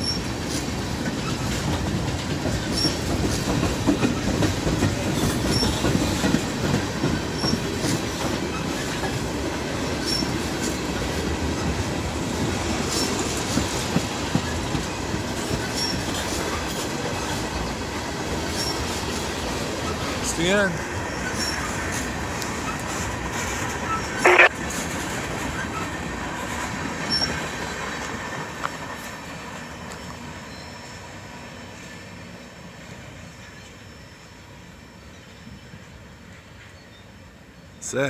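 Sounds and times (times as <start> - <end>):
wheels clicking over rail joints: 0.0 - 29.0
freight train wheels rumbling: 0.0 - 34.8.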